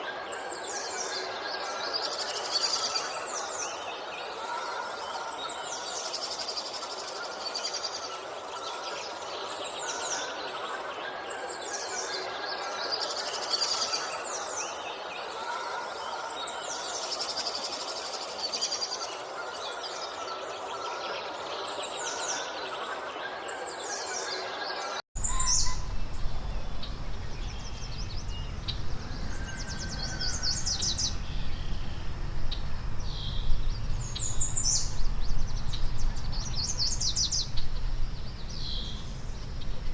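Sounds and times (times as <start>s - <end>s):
birds chirping and calling: 0.0s - 39.9s
steady background hiss: 0.0s - 39.9s
low rumble: 25.6s - 36.7s.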